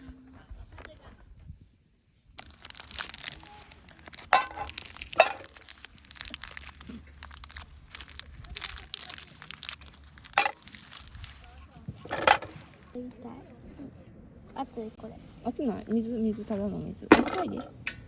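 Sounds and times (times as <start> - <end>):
crinkling handling noise: 2.3 - 13.0.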